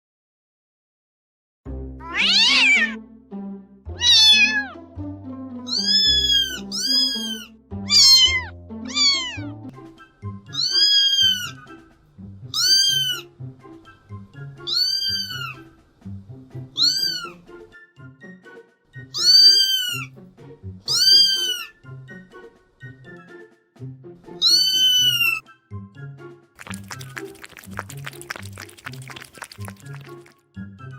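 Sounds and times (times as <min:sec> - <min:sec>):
background music: 0:01.7 - 0:30.9
cat meowing: 0:02.0 - 0:03.0, 0:04.0 - 0:04.8, 0:05.7 - 0:09.6, 0:10.5 - 0:11.6, 0:12.5 - 0:13.3, 0:14.7 - 0:15.6, 0:16.8 - 0:17.4, 0:19.1 - 0:20.1, 0:20.9 - 0:21.8, 0:24.4 - 0:25.4.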